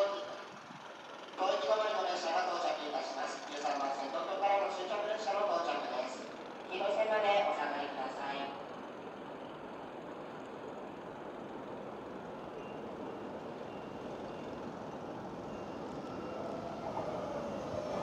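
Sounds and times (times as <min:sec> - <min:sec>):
train running noise: 0:00.0 - 0:18.0
faint whine: 0:10.7 - 0:17.8.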